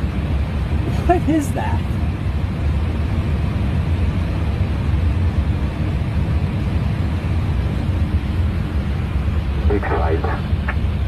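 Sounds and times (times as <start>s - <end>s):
airliner cockpit noise: 0.0s - 11.0s.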